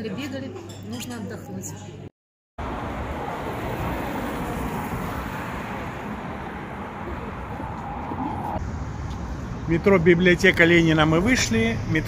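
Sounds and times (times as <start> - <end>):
city street traffic: 2.6 - 12.0.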